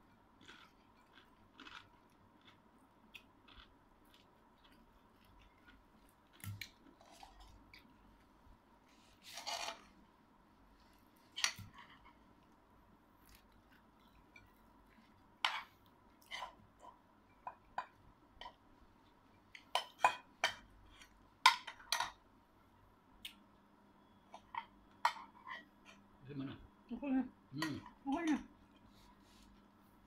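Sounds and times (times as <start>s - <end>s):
chewing and crunching food: 0.0s - 8.4s.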